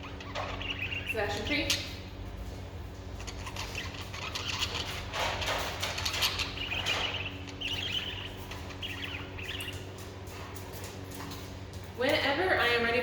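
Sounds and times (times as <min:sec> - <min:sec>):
birds chirping: 0:00.0 - 0:13.0
steady low hum: 0:00.0 - 0:13.0
clicks and rustles: 0:02.9 - 0:07.7.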